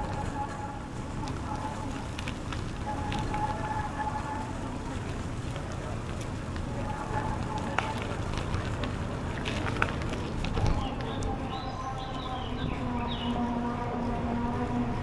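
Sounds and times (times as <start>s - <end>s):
bicycle tyres rolling: 0.0s - 15.0s
bike clicks and rattles: 5.0s - 11.2s.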